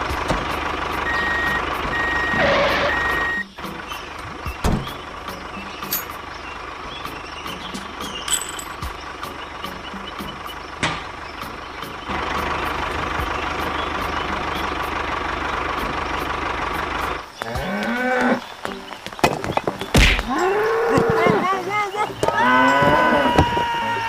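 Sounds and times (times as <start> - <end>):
cow mooing: 17.4 - 18.5, 20.3 - 21.6, 22.2 - 24.0.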